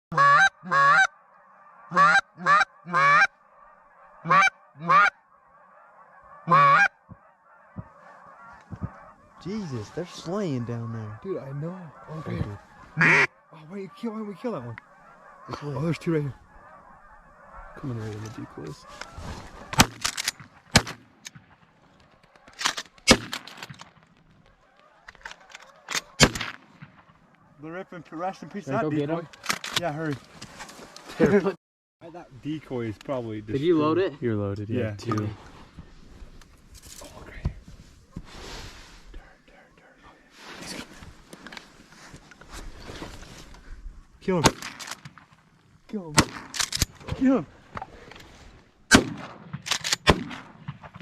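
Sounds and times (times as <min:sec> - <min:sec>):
goose-like honks: 0:00.1 - 0:19.9
shotgun shot: 0:26.2 - 0:27.1, 0:48.9 - 0:51.0.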